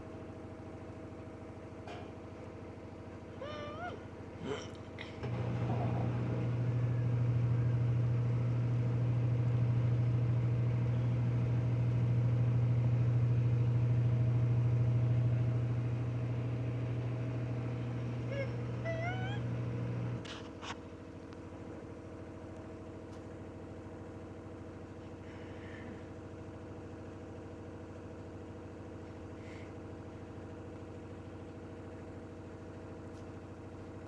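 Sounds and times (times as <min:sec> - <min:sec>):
washing machine spinning: 0:05.2 - 0:20.3
cat meowing: 0:18.3 - 0:19.6.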